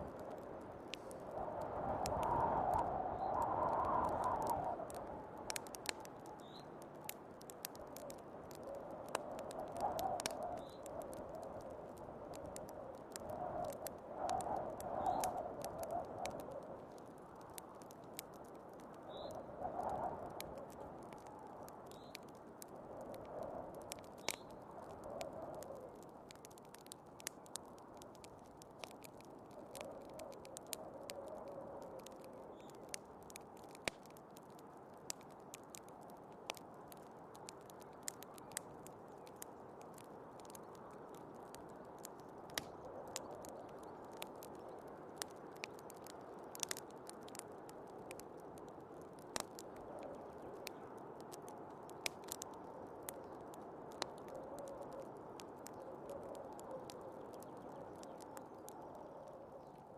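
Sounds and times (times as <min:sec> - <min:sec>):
wood fire crackling and popping: 0:00.0 - 0:59.9
whistling snowstorm wind: 0:01.1 - 0:05.6.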